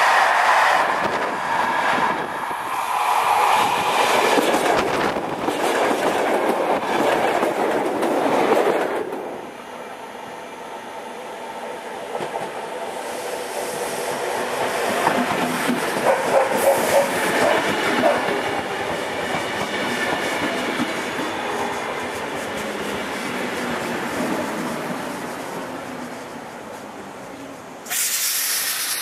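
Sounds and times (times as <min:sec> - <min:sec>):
train wheels rushing on rails: 0:00.0 - 0:29.0
clickety-clack over rail joints: 0:03.4 - 0:09.4, 0:12.1 - 0:12.7, 0:14.6 - 0:25.6.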